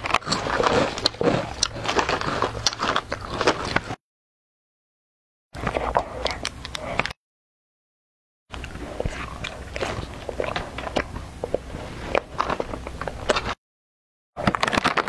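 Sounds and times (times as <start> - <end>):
crunchy snack chewing: 0.0 - 4.0, 8.5 - 13.6.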